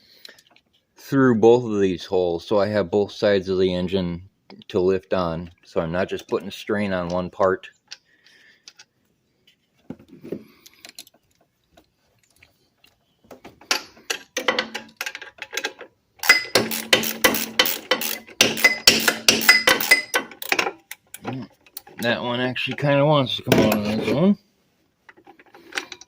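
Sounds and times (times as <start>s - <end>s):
socket ratchet clicking: 16.2s - 21.0s.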